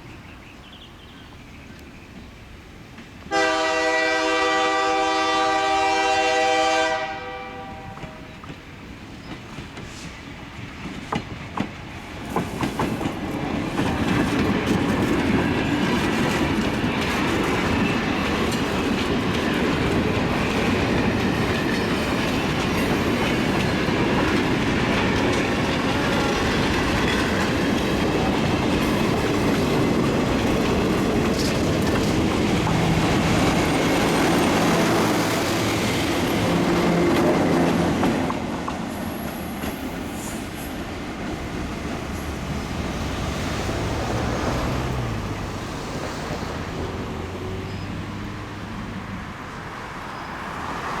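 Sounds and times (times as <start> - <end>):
train wheels clicking over rail joints: 8.0 - 48.4.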